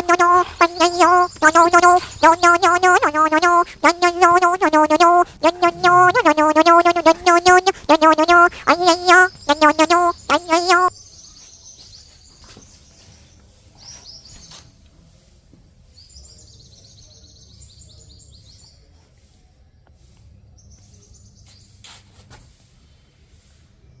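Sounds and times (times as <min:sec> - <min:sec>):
faint birds chirping: 0:00.0 - 0:14.9, 0:15.9 - 0:22.1.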